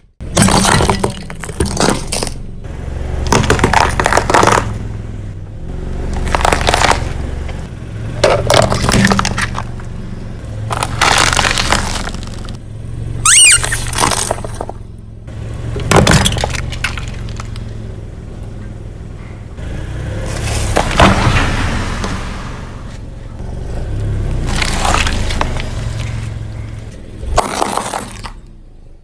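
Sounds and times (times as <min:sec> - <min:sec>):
low engine hum: 0:00.0 - 0:29.0
tyre crushing brittle objects: 0:00.2 - 0:02.4, 0:03.1 - 0:04.9, 0:06.0 - 0:12.6, 0:13.3 - 0:14.8, 0:15.6 - 0:17.7, 0:24.0 - 0:28.4.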